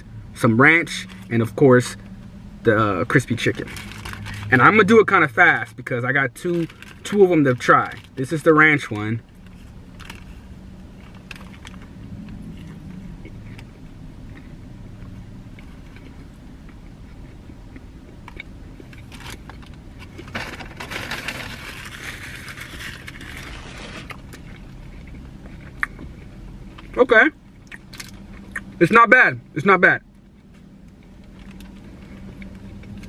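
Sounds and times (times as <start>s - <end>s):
steady low hum: 0.0s - 33.0s
crunchy chewing: 9.3s - 28.8s
loud rustling: 20.1s - 24.2s.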